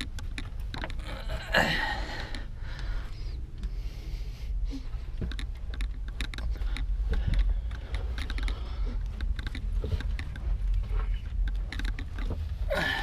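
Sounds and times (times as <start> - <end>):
crawling clicks and scuffs: 0.0 - 1.2, 4.7 - 13.0.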